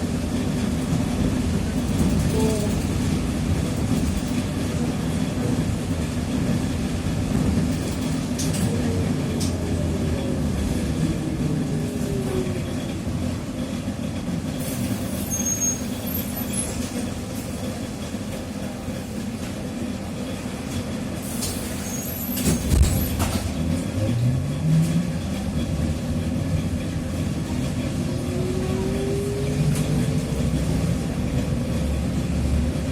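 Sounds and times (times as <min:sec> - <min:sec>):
trolleybus running: 0:00.0 - 0:32.9.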